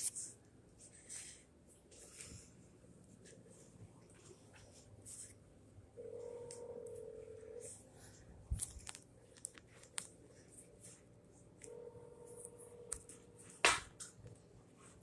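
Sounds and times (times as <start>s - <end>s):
telephone ringback tone: 6.0s - 7.8s, 11.7s - 13.4s.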